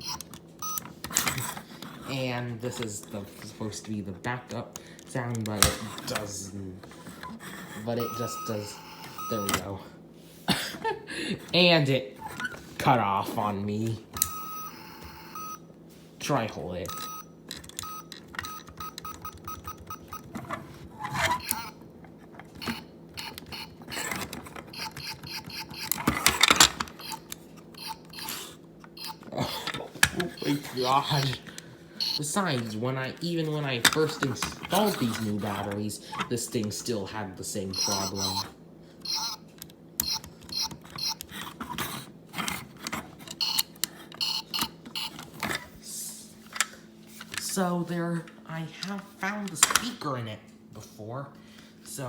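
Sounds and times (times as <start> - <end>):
toy electronic blips: 8.0 - 9.6, 21.4 - 21.8, 24.7 - 26.0, 27.0 - 28.4, 37.7 - 39.4, 43.4 - 45.2.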